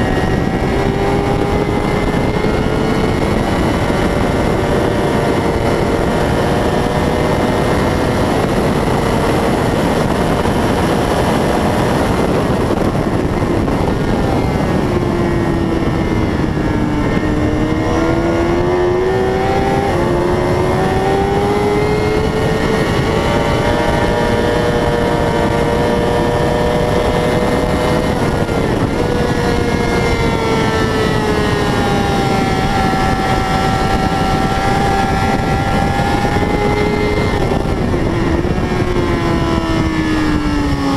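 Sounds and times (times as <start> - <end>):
racing motorcycle engine: 0.0 - 40.9
wind noise: 0.0 - 40.9.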